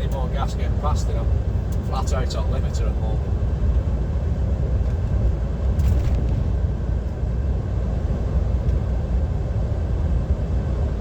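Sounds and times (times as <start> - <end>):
truck engine and tyres rumbling: 0.0 - 11.0.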